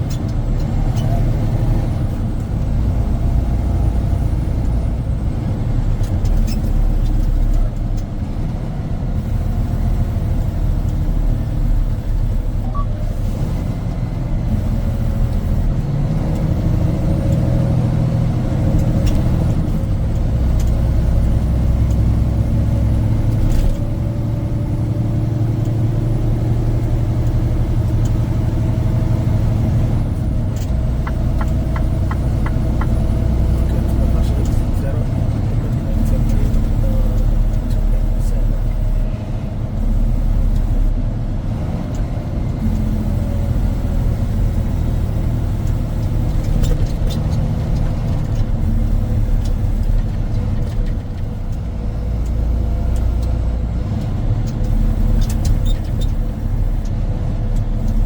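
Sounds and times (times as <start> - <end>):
truck engine and tyre noise: 0.0 - 58.0.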